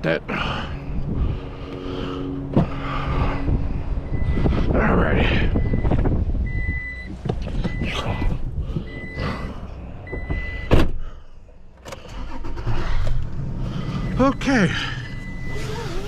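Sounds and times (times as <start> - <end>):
truck engine running: 0.0 - 10.5
door warning chime: 10.1 - 10.7.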